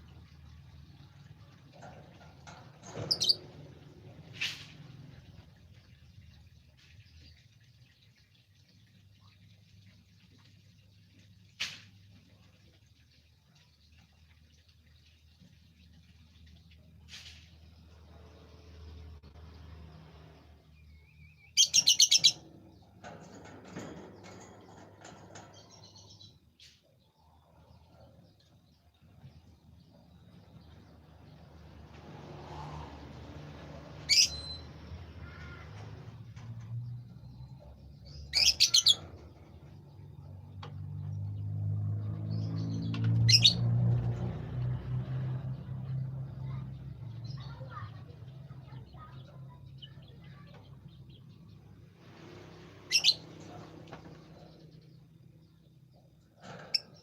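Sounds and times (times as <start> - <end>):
songbird chirping: 12.3 - 57.0.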